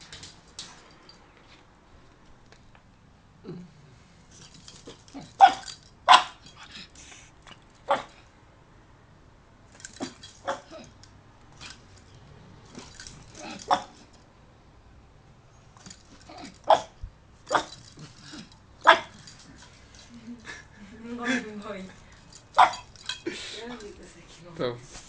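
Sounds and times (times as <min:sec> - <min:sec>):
dog barking: 0:05.4 - 0:06.4, 0:07.9 - 0:08.2, 0:13.4 - 0:14.0, 0:16.7 - 0:17.8, 0:18.8 - 0:19.2, 0:22.6 - 0:22.9.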